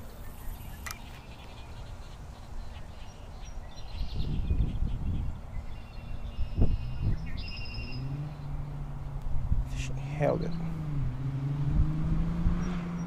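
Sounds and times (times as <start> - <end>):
birds chirping and calling: 0.0 - 11.5
low rumbling: 4.1 - 13.0.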